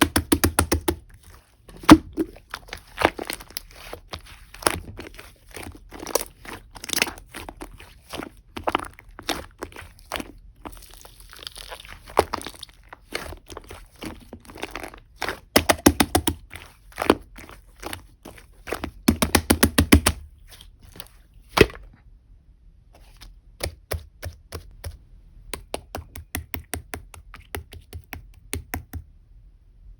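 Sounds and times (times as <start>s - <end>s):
slime clicking and popping: 0.0s - 1.0s, 10.9s - 18.0s, 18.7s - 20.3s.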